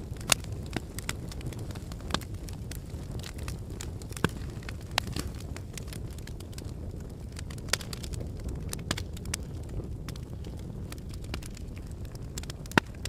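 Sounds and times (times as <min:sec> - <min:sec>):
lava crackling and rumbling: 0:00.0 - 0:13.0.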